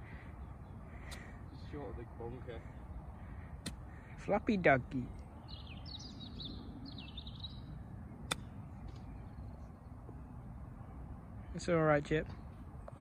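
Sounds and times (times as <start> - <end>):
low outdoor background noise: 0.0 - 13.0
small bird chirping: 5.0 - 10.0.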